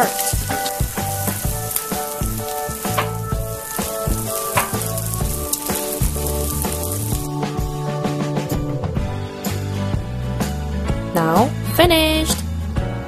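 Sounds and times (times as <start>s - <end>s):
pancakes sizzling in hot oil: 0.0s - 7.3s
background music with bass line: 0.0s - 13.0s.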